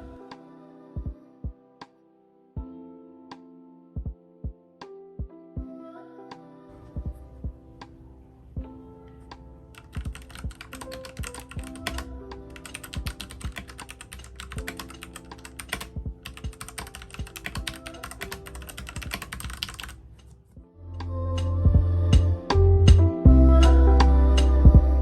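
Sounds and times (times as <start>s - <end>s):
soft background music: 0.0s - 19.9s, 20.6s - 25.0s
mechanical keyboard typing: 9.8s - 20.4s.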